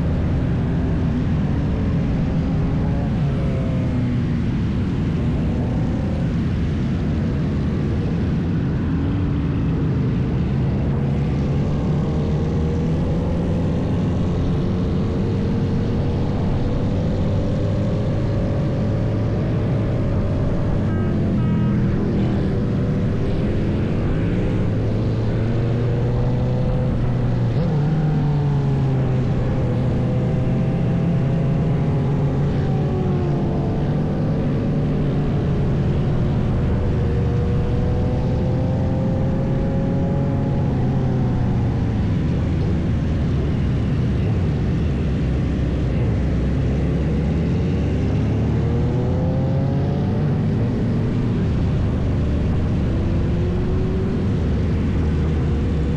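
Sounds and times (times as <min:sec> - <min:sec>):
motorcycle engines revving: 0:00.0 - 0:55.9
wind rushing over microphone: 0:00.0 - 0:55.9.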